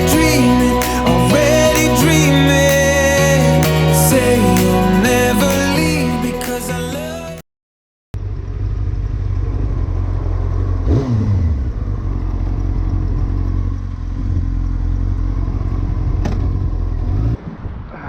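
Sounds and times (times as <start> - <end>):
motorcycle engine revving: 8.2 - 17.3.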